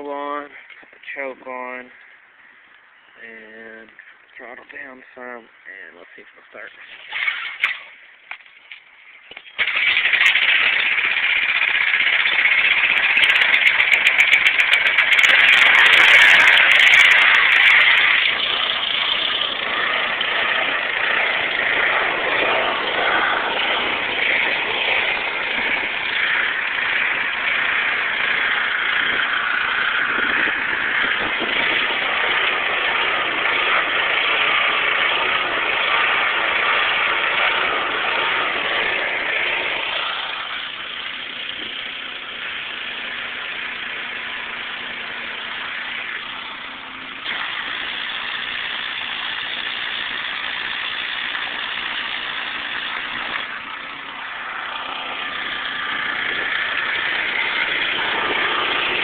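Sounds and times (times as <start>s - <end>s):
pressure washer engine running: 9.2s - 59.0s.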